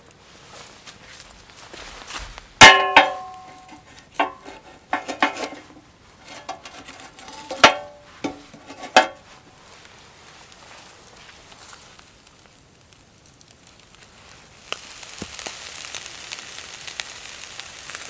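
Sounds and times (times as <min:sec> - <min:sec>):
metal cookware clanking: 0:02.6 - 0:09.4.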